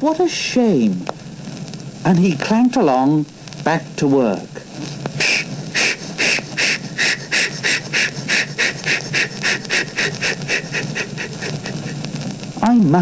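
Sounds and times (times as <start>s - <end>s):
steam locomotive chuffing: 5.2s - 12.0s.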